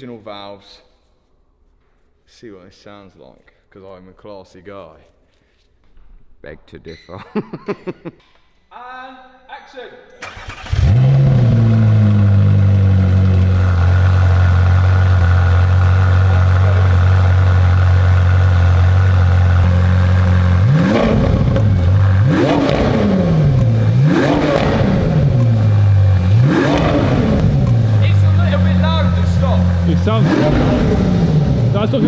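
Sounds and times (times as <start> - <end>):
car engine idling and revving: 10.2 - 32.0.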